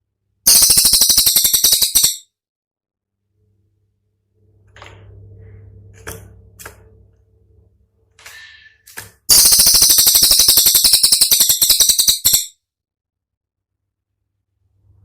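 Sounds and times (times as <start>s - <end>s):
songbird rapid sharp trill: 0.5s - 2.2s, 9.3s - 12.6s
low hum: 3.1s - 8.6s.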